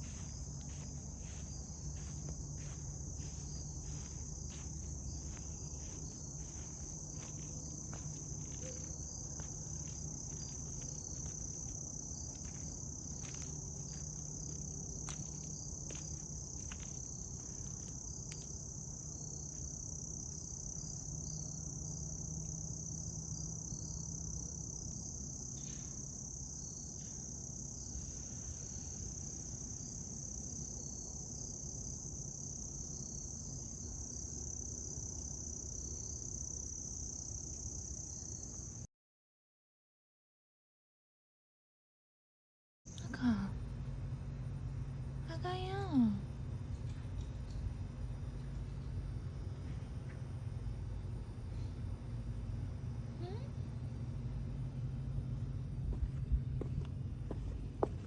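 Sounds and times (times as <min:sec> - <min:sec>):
insects chirring: 0:00.0 - 0:38.9, 0:55.9 - 0:58.0.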